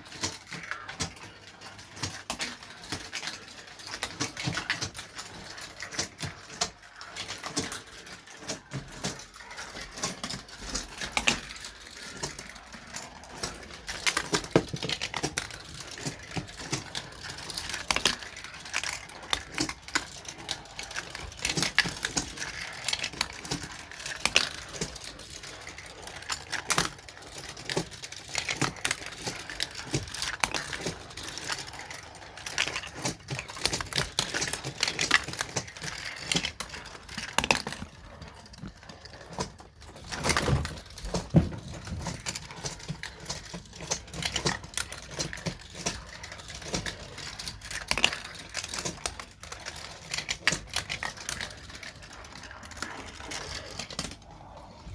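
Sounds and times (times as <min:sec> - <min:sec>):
marbles clattering on plastic track: 0:00.0 - 0:54.9.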